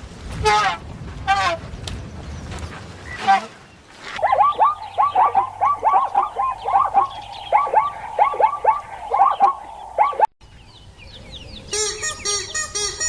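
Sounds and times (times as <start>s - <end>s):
flock of birds calling: 4.2s - 10.3s.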